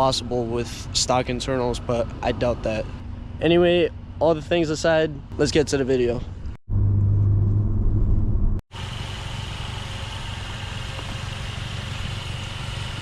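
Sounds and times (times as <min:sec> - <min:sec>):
car exhaust idling: 0:08.8 - 0:13.0.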